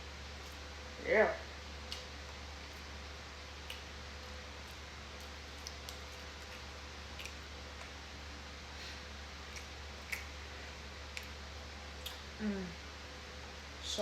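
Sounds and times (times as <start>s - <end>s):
steady low hum: 0.0s - 14.0s
mouth clicks of chewing: 1.8s - 2.8s, 3.6s - 8.0s, 9.5s - 10.4s, 11.1s - 11.4s, 12.0s - 12.3s.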